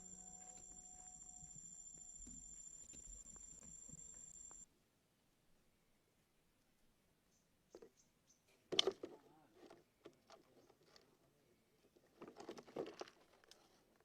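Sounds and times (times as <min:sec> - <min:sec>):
rustling and scraping: 0:11.8 - 0:14.0.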